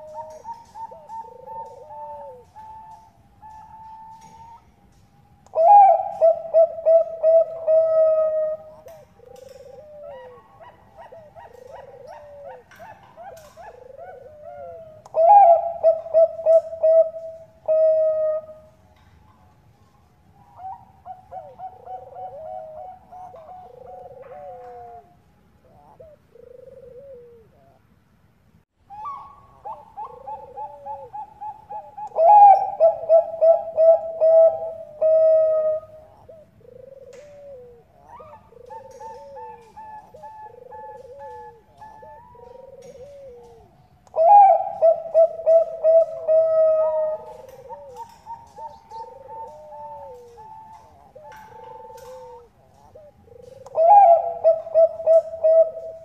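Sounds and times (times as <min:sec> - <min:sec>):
rapid clipped dove coos: 0:00.0 - 0:18.8, 0:20.5 - 0:27.8, 0:28.9 - 0:56.0
doves cooing: 0:00.0 - 0:28.0, 0:28.9 - 0:56.0.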